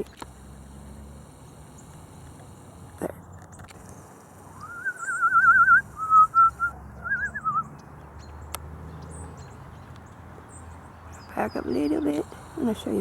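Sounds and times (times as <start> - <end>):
person whistling a warbling trill: 4.6 - 7.6
faint high bird chirps: 4.6 - 8.4.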